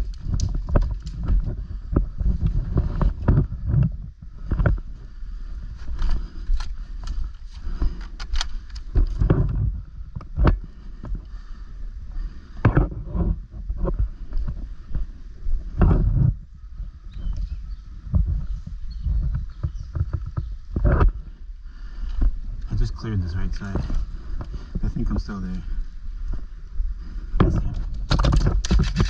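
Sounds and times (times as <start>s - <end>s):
rumbling handling noise: 0.0s - 29.0s
sharp clicks and knocks: 27.4s - 29.0s.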